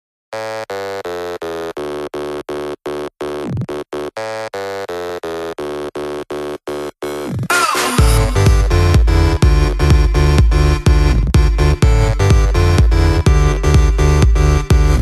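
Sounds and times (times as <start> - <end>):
pulsing buzzy synthesizer note: 0.4 - 15.0
falling synth sweep: 7.5 - 9.5.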